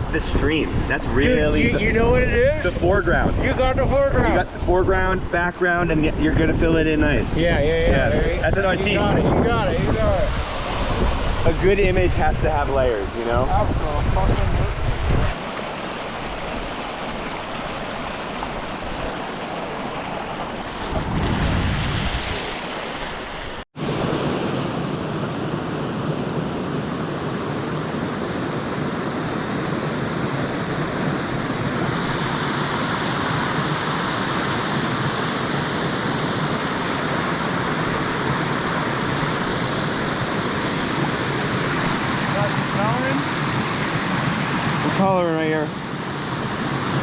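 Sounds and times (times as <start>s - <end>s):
outdoor rushing noise: 20.2s - 47.0s.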